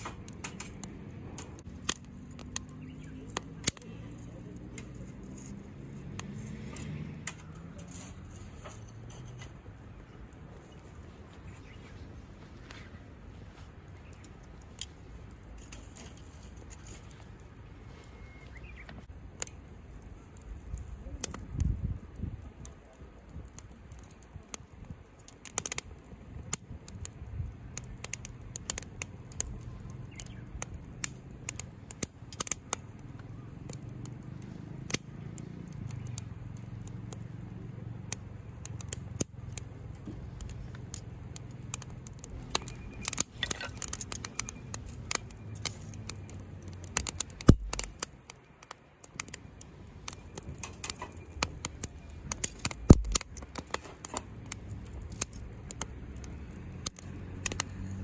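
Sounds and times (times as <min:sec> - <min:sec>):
wood fire crackling and popping: 0:00.0 - 0:58.0
low steady rumble: 0:26.0 - 0:57.8.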